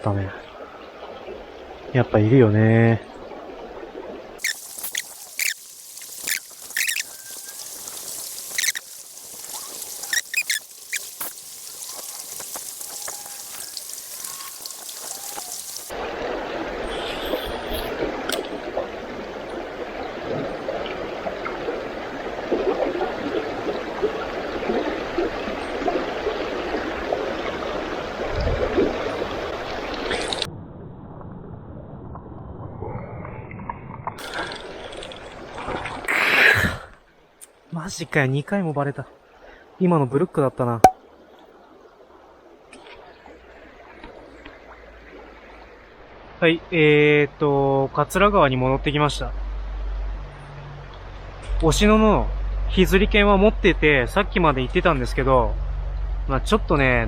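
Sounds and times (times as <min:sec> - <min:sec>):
stream water rushing and trickling: 0:00.0 - 0:30.5, 0:34.1 - 0:48.3.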